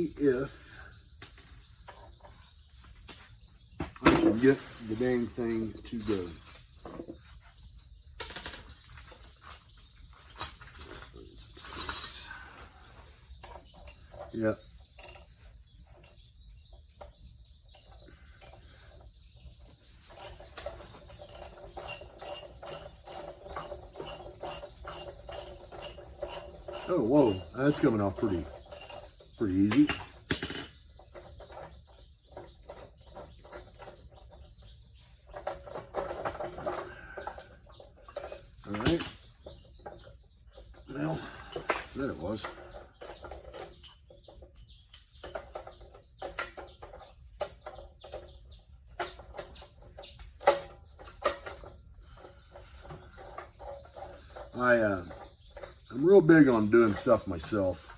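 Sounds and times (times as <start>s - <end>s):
metal tools clinking and rattling: 4.1s - 57.9s
metal parts clicking and tapping: 8.0s - 12.3s, 13.4s - 16.2s, 20.0s - 55.9s.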